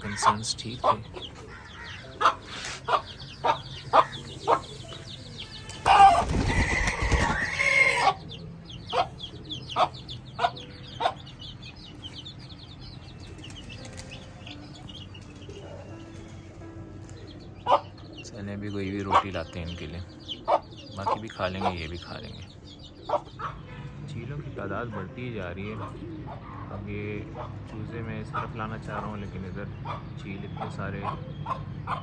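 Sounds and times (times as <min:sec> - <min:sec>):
chickens clucking: 0:00.0 - 0:32.0
chicks peeping: 0:00.0 - 0:32.0
noisy flurry: 0:05.7 - 0:07.8.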